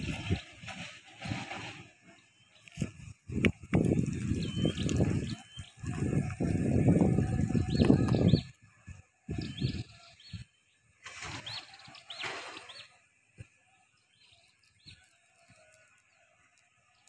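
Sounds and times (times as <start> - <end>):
low rumbling noise: 0.0 - 8.5
small bird chirping: 4.0 - 8.6, 9.3 - 13.0, 13.7 - 17.0.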